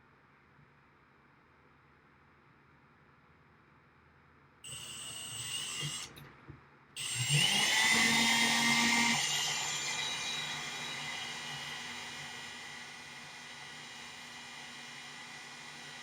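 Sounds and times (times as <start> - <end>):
electric drill drilling metal: 4.7 - 6.2, 7.0 - 16.0.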